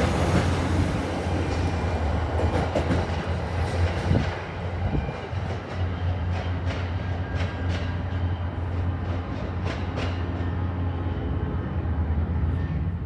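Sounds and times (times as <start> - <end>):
train rumbling past: 0.0 - 13.0
train wheels clacking over rail joints: 1.4 - 10.6.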